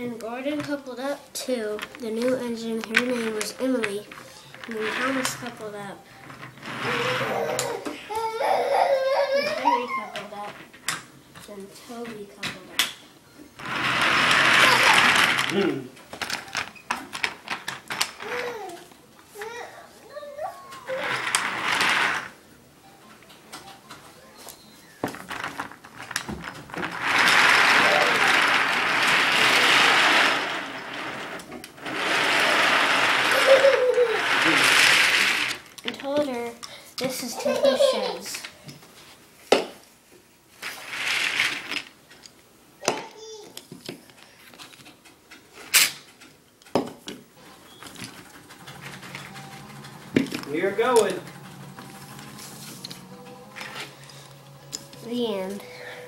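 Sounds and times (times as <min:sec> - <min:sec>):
toy trains clicking and knocking: 0:00.2 - 0:08.5, 0:13.6 - 0:18.8, 0:20.7 - 0:22.4, 0:25.0 - 0:38.8, 0:40.6 - 0:44.0, 0:44.7 - 0:55.6
toy train whirring on track: 0:04.6 - 0:05.6, 0:06.2 - 0:08.4, 0:13.6 - 0:15.6, 0:20.9 - 0:22.4, 0:26.8 - 0:35.6, 0:40.7 - 0:41.8.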